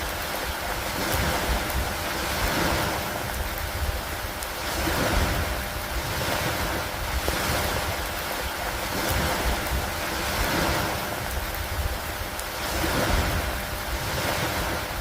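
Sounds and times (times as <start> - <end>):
rain with wind: 0.0 - 15.0.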